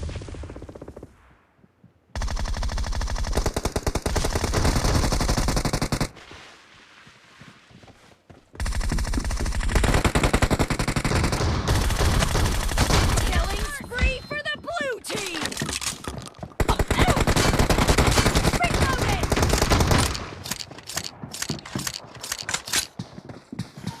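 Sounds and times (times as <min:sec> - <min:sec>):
video game automatic weapon fire: 0:08.6 - 0:13.7, 0:16.6 - 0:22.7.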